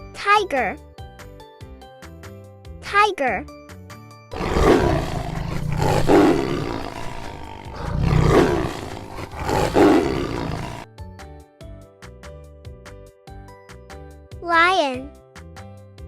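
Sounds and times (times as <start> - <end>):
children's background music: 0.0 - 4.3, 11.0 - 16.0
tiger roaring: 4.3 - 10.9.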